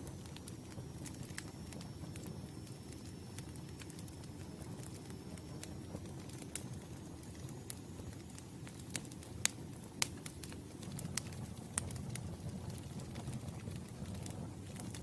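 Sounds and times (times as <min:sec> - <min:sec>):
campfire crackling and popping: 0:00.0 - 0:15.0
low rumble of burning wood: 0:00.0 - 0:15.0.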